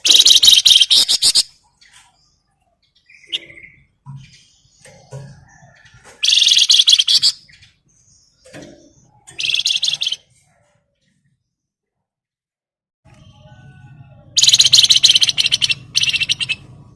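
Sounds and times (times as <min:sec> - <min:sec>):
songbird rattling trills: 0:00.0 - 0:02.2, 0:03.0 - 0:07.7, 0:08.4 - 0:10.2, 0:14.3 - 0:16.7
soft bird chirps: 0:00.0 - 0:12.0, 0:13.1 - 0:16.8.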